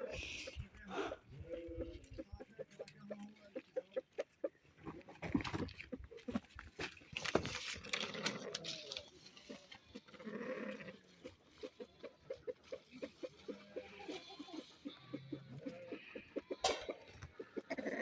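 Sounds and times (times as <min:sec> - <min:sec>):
goat bleating: 0:13.5 - 0:16.8.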